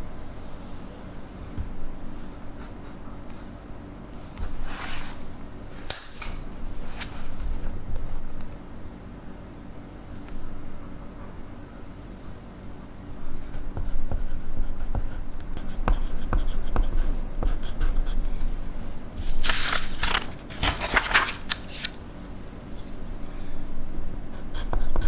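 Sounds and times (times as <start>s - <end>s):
pencil writing on paper: 13.4s - 18.2s, 24.4s - 25.0s.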